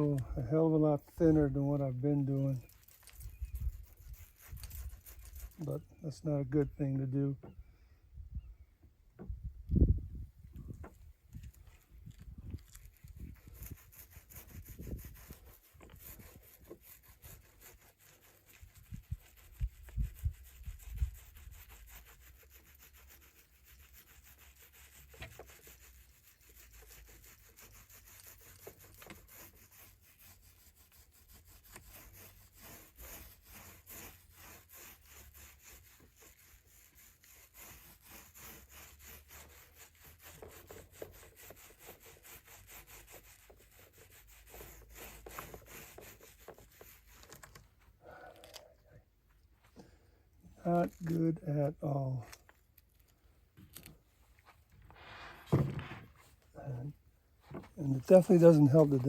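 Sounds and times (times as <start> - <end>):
quick rubbing strokes: 0.0 - 7.1, 11.3 - 48.7, 50.6 - 52.6, 53.7 - 59.0.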